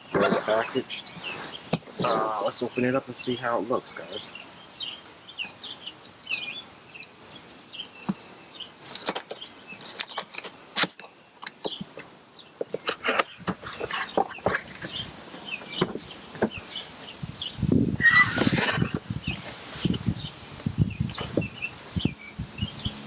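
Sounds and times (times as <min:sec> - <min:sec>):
small birds chirping: 0:00.0 - 0:23.0
packaging clicks and rustles: 0:08.0 - 0:15.2
cardboard box being opened: 0:08.8 - 0:11.0.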